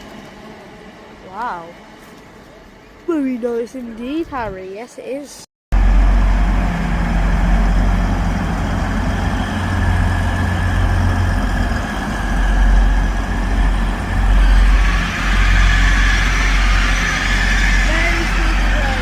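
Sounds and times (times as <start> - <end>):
diesel train engines rumbling: 0.0 - 19.0
squealing tones: 9.3 - 19.0.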